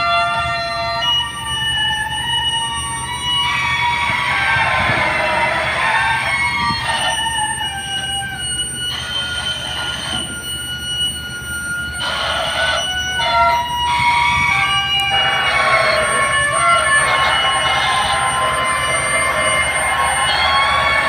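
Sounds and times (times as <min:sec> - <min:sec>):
shrill metal squealing: 0:00.0 - 0:21.0.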